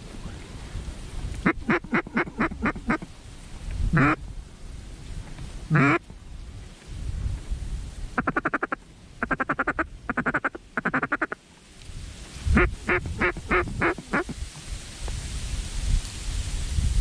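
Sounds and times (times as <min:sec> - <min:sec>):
duck call feeding chuckle: 0:01.4 - 0:03.1, 0:04.0 - 0:04.2, 0:05.7 - 0:06.0, 0:08.2 - 0:11.4, 0:12.6 - 0:14.4
duck call quacks: 0:01.4 - 0:03.1, 0:03.9 - 0:04.2, 0:05.7 - 0:06.0, 0:08.2 - 0:11.4, 0:12.6 - 0:14.4.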